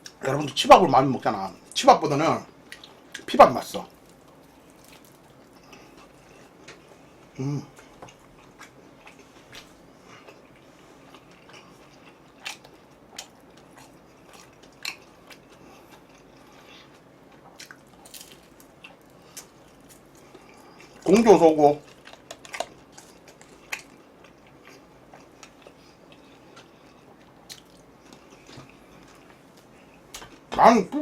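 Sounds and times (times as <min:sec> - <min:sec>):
crunching and chewing food: 0:02.5 - 0:30.5
person humming: 0:07.4 - 0:07.7.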